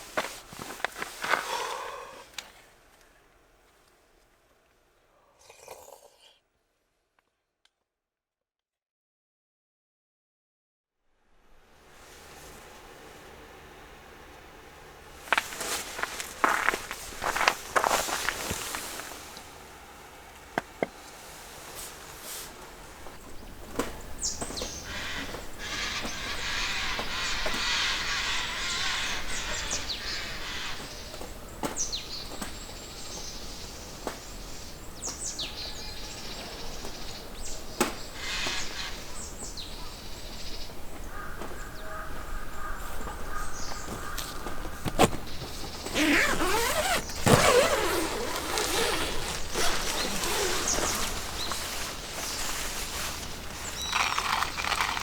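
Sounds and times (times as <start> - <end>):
fire hissing: 0.0 - 2.6.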